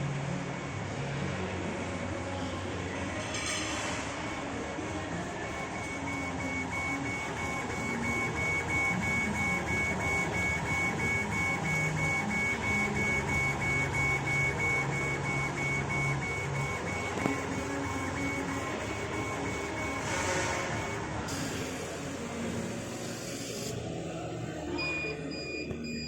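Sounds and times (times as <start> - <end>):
stepper motors whining: 4.2 - 24.2
pulsing high tone: 4.3 - 23.8.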